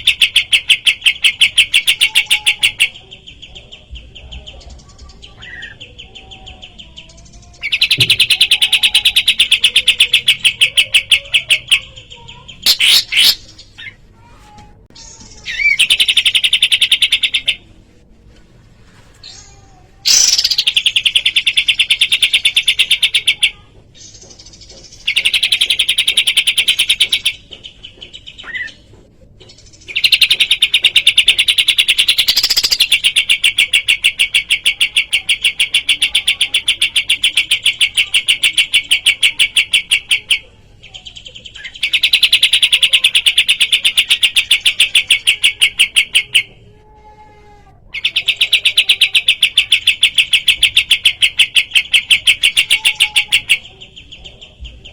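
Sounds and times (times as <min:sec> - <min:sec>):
bird chirping rapidly: 0:05.1 - 0:14.0, 0:15.0 - 0:17.7, 0:20.1 - 0:28.8, 0:29.8 - 0:40.5.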